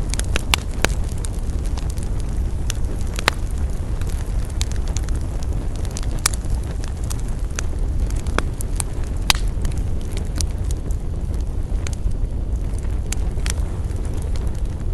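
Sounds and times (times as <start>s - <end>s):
campfire crackling and popping: 0.0s - 14.9s
low rumble: 0.0s - 14.9s.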